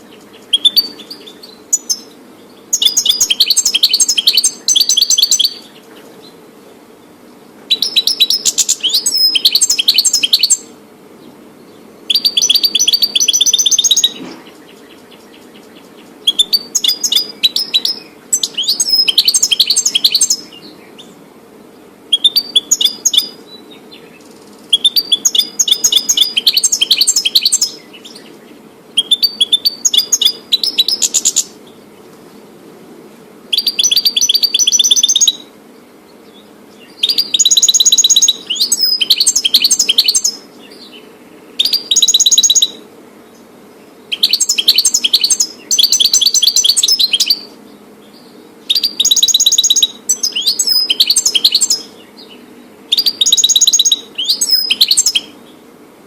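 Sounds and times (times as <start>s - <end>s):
goldfinch high twittering: 0.4s - 2.1s, 2.7s - 5.7s, 7.7s - 10.7s, 12.1s - 14.2s, 16.3s - 20.5s, 33.6s - 35.4s, 36.9s - 40.4s, 41.6s - 42.8s, 44.1s - 47.5s, 48.7s - 51.9s, 52.9s - 55.4s.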